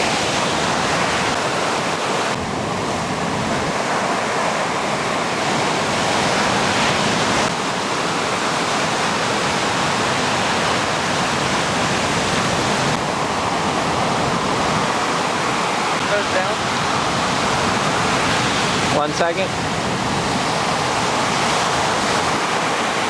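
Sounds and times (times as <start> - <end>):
water rushing: 0.0 - 23.0.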